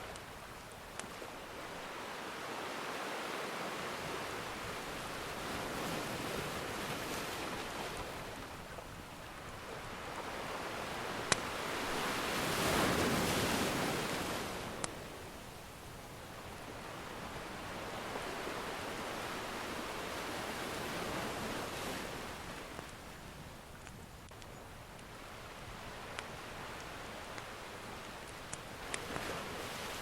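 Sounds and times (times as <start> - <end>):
ocean surf washing in: 1.3 - 15.1, 16.5 - 22.8.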